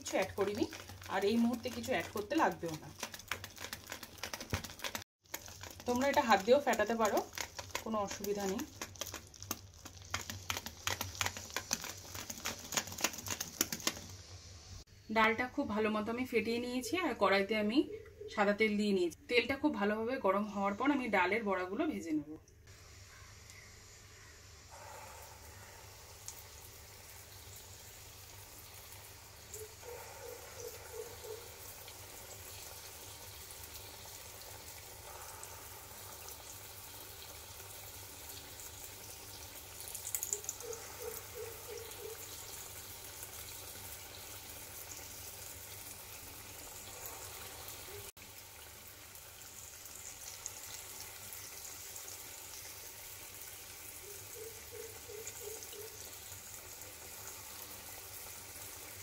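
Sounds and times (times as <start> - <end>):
fritters frying in hot oil: 0.0 - 14.8, 26.0 - 29.8, 30.6 - 59.0
faint chirps: 22.9 - 26.4.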